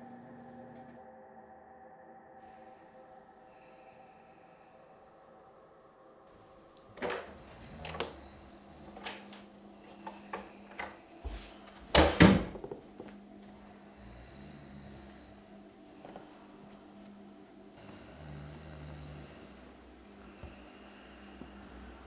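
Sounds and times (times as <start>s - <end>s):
door clicks and light knocks: 6.9s - 8.2s, 8.8s - 11.0s
door banging: 11.9s - 13.1s.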